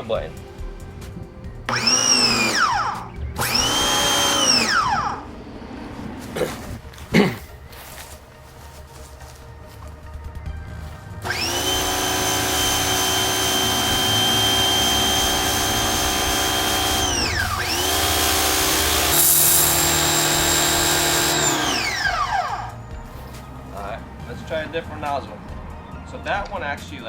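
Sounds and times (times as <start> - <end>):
pressure washer motor whine: 0.0 - 6.8, 11.2 - 25.6
loud hiss: 11.3 - 23.6.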